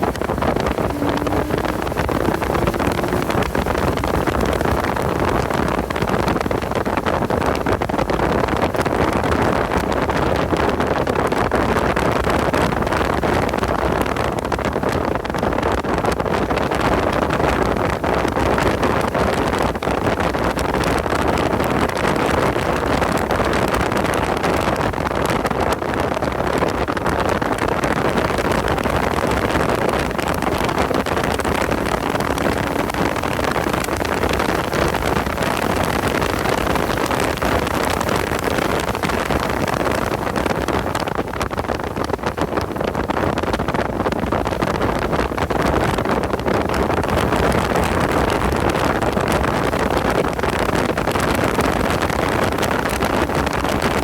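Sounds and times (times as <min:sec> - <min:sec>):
car engine running under load: 0:00.0 - 0:10.0, 0:28.1 - 0:49.2
wind noise on microphone: 0:00.0 - 0:54.0.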